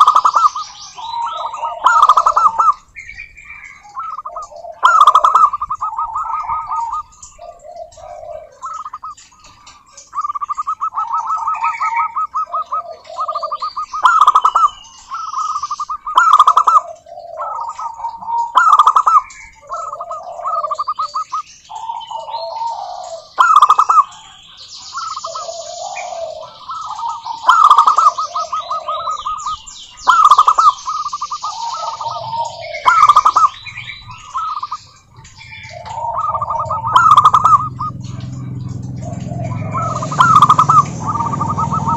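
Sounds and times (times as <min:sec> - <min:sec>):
doves cooing: 0:00.0 - 0:41.9
high fast chirping: 0:10.0 - 0:16.8, 0:24.7 - 0:41.9.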